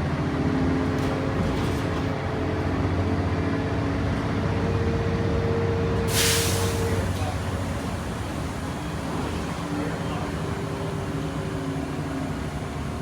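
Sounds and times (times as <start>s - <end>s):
bus engine running: 0.0s - 13.0s
short hiss: 6.1s - 6.9s.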